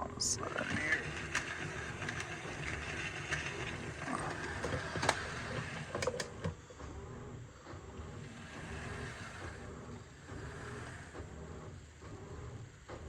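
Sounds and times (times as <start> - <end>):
model locomotive motor whir: 0.0 - 6.6, 7.6 - 12.0.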